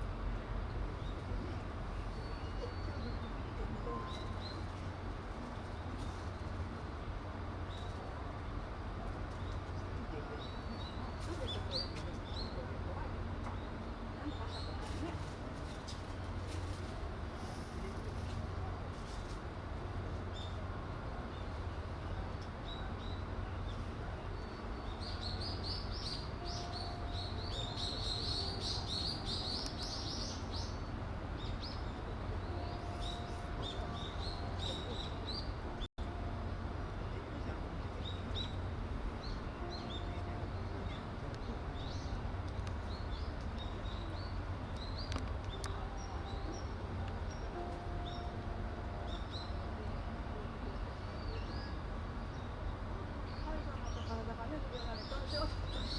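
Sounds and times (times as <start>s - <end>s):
small birds chirping: 21.3s - 35.8s.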